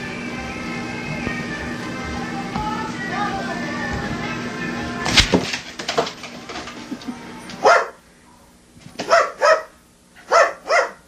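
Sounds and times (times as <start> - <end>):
dog barking: 7.6 - 8.0, 9.0 - 11.0.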